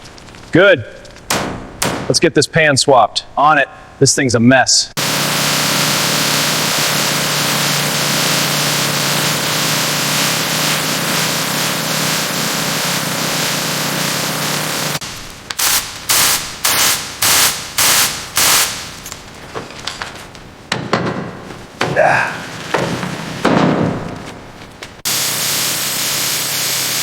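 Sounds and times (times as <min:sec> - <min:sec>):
power tool rattling bursts: 0:05.0 - 0:19.1
power tool running: 0:05.0 - 0:19.1, 0:25.1 - 0:27.0.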